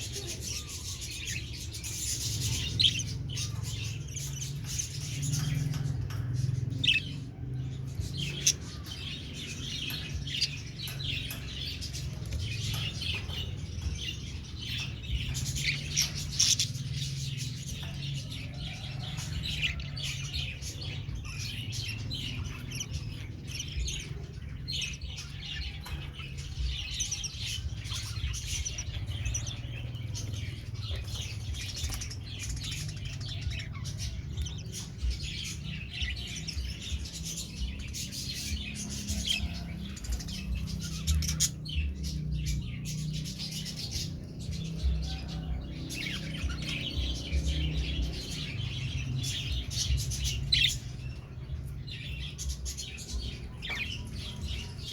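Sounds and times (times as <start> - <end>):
budgerigars chirping and chattering: 0.0 - 54.9.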